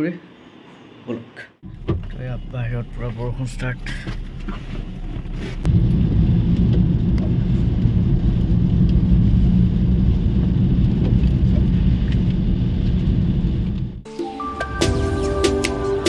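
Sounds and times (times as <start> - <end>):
car road rumble: 1.6 - 14.0.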